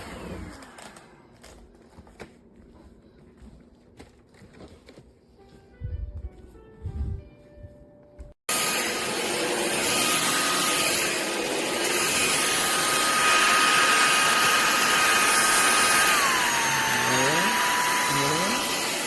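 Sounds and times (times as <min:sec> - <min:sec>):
stick vacuum running: 0:08.5 - 0:19.0.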